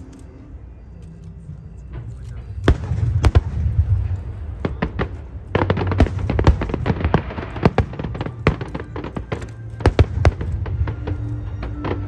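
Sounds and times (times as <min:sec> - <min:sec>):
fireworks bangs and crackles: 0:02.6 - 0:12.0.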